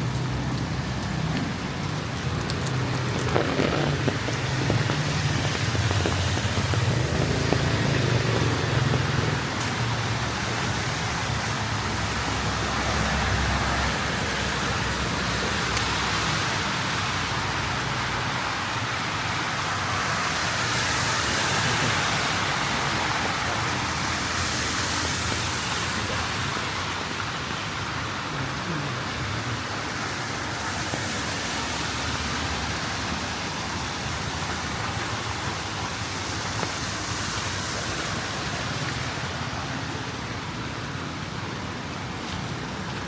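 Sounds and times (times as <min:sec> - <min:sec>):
passing vehicle engine rumble: 0:00.0 - 0:27.1
traffic hiss on wet street: 0:00.0 - 0:43.0.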